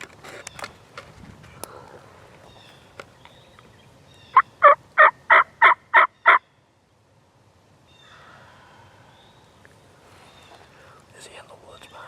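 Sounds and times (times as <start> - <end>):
turkey yelping: 4.3 - 6.4.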